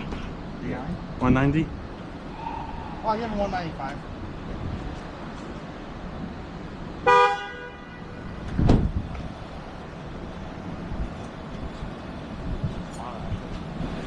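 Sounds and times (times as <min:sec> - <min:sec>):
vehicle horn blast: 0:07.0 - 0:08.3.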